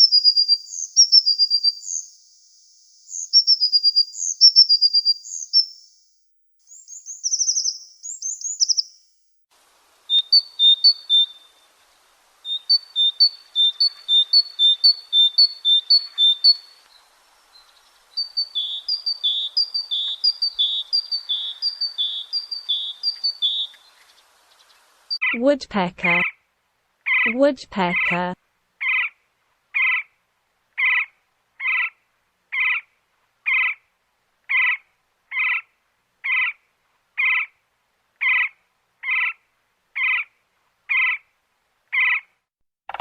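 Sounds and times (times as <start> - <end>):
tit singing: 27.3 - 28.4.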